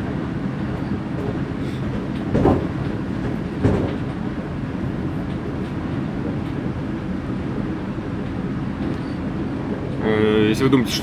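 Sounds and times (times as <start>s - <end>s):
train running rumble inside carriage: 0.0s - 11.0s
loud knocks: 2.2s - 3.0s, 3.6s - 4.1s.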